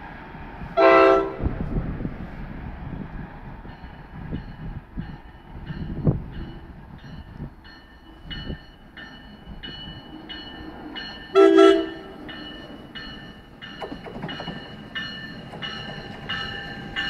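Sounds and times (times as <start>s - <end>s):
train rumbling: 0.0s - 17.0s
train horn blast: 0.8s - 1.6s, 11.3s - 12.2s
train bell ringing: 3.6s - 17.0s.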